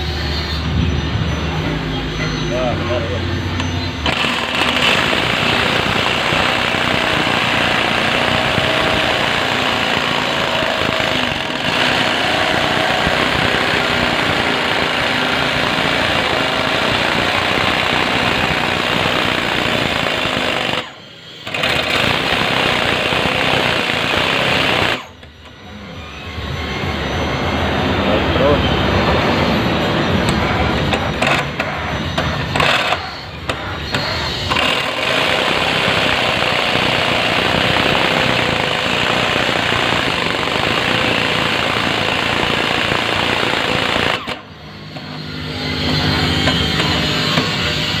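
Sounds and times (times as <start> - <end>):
electric jigsaw cutting plywood: 4.0 - 25.2, 32.6 - 33.1, 33.8 - 44.5.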